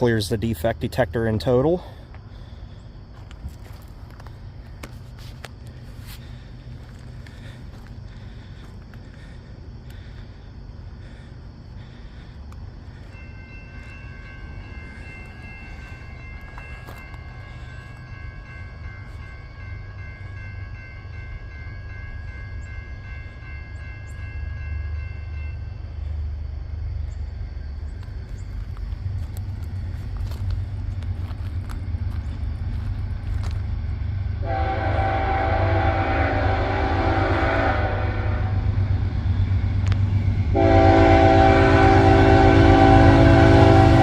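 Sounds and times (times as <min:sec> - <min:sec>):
train rumble: 0:00.0 - 0:44.0
locomotive horn: 0:34.4 - 0:38.8, 0:40.5 - 0:44.0.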